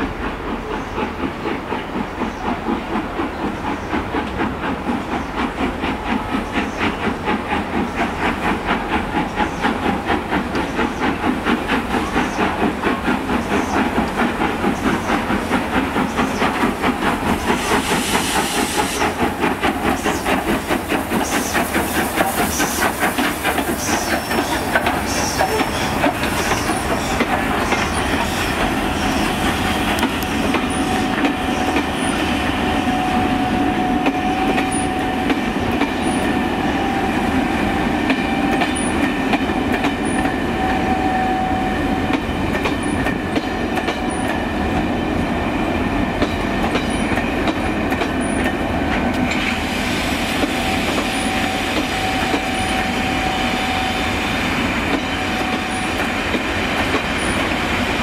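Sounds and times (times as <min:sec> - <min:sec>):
wheels clicking over rail joints: 0:19.2 - 0:29.2, 0:46.1 - 0:49.6.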